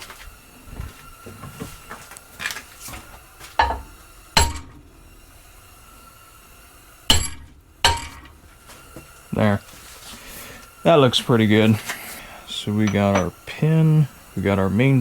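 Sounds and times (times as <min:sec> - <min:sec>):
metal knocks on steel plate: 0:03.6 - 0:04.8.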